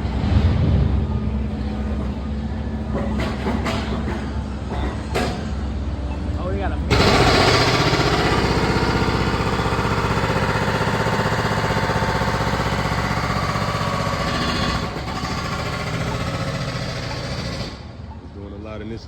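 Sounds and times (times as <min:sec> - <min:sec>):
machine hammering: 0:06.9 - 0:17.8
machinery engine running: 0:06.9 - 0:17.8.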